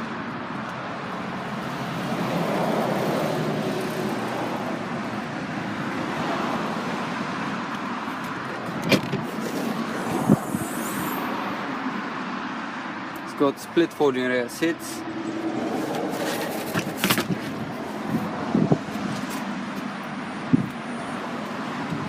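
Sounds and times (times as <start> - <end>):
road traffic: 0.0 - 22.0
vehicle passing: 14.8 - 19.7.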